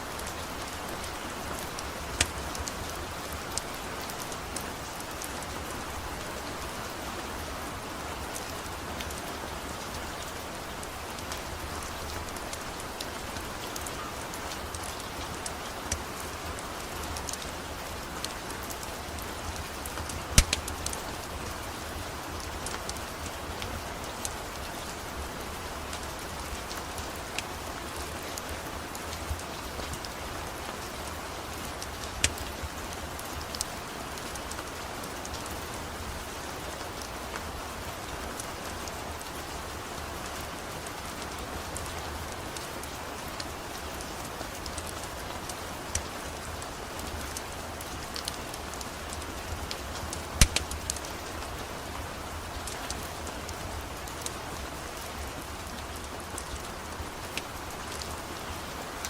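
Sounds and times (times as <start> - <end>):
steady rain falling: 0.0 - 59.0
sharp clicks: 20.4 - 20.7, 50.4 - 50.8.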